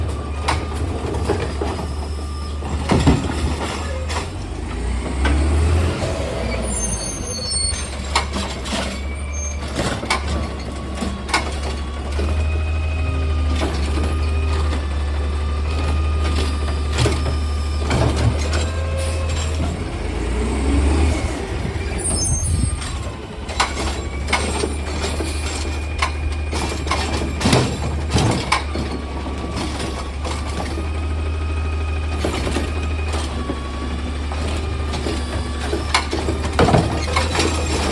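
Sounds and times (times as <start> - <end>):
truck engine humming: 0.0 - 37.9
clanks and bangs: 2.6 - 4.4, 34.4 - 37.9
hydraulic whining: 15.8 - 37.9.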